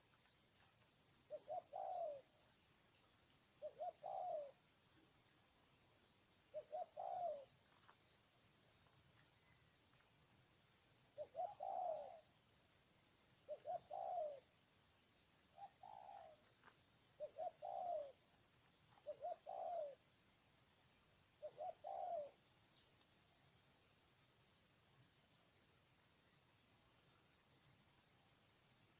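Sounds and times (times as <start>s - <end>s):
faint high hiss: 0.0s - 28.9s
dove cooing: 1.3s - 2.4s, 3.6s - 4.6s, 6.5s - 7.6s, 11.2s - 12.3s, 13.5s - 14.5s, 15.5s - 16.6s, 17.2s - 18.2s, 18.9s - 20.0s, 21.4s - 22.4s.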